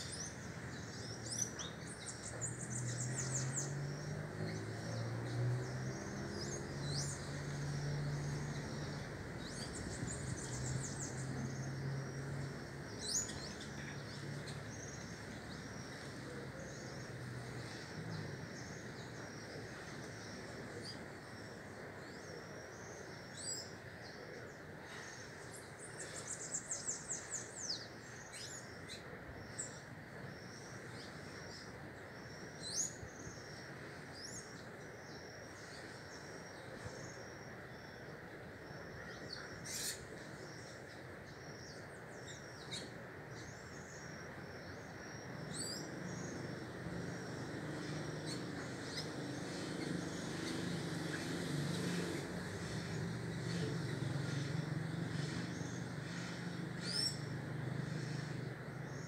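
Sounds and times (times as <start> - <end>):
small birds chirping: 0.0 - 59.0
steady background noise: 0.0 - 59.0.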